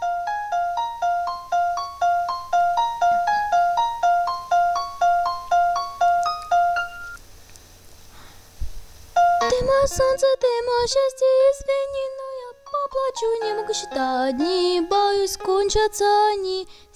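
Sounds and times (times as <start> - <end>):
keyboard playing fast arpeggio: 0.0 - 7.2.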